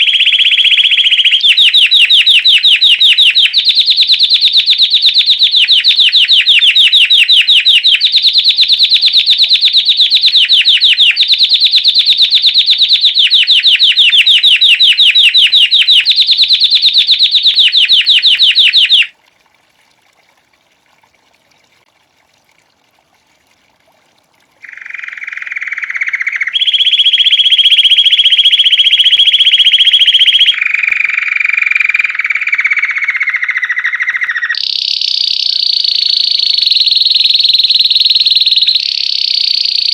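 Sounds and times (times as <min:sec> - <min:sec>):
canary singing trills: 0:00.0 - 0:19.1, 0:24.6 - 0:39.9.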